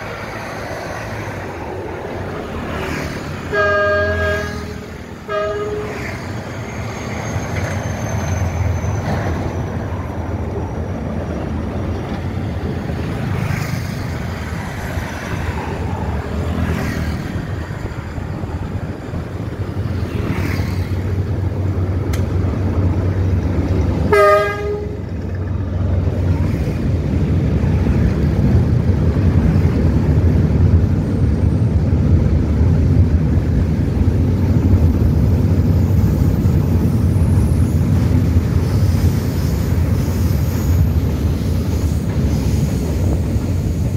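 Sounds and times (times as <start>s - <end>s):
diesel train engine rumble: 0.0s - 43.9s
train wagons rolling: 0.0s - 43.9s
train horn: 3.5s - 6.3s, 24.1s - 25.1s.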